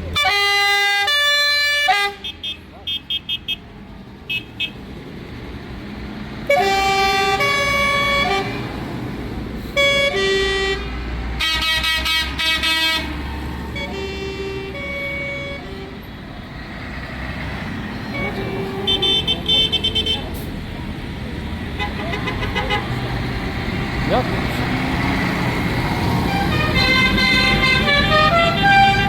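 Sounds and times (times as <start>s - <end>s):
tractor engines rumbling: 0.0s - 29.0s
vehicle horn blasts: 6.5s - 8.6s, 9.8s - 13.1s, 13.8s - 16.0s, 18.1s - 20.3s, 21.8s - 23.0s, 26.3s - 29.0s.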